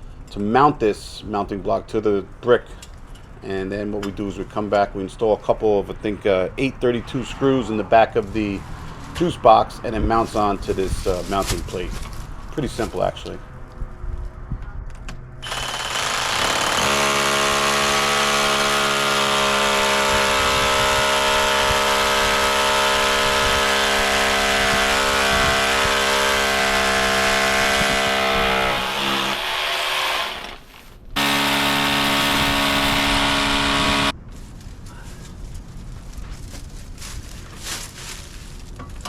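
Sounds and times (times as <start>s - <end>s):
electric drill boring into brick: 15.4s - 34.1s.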